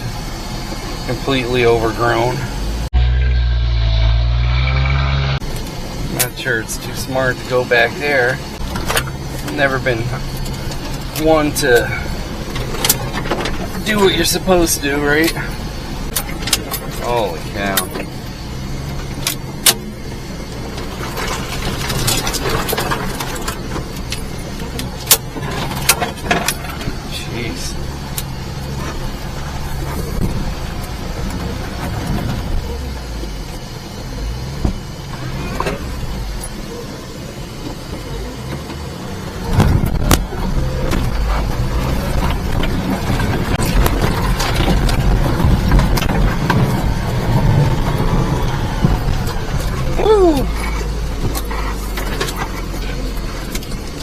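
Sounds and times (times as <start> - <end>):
small truck engine running: 0.0 - 54.0
knocks and rattles: 12.5 - 14.1, 39.5 - 54.0.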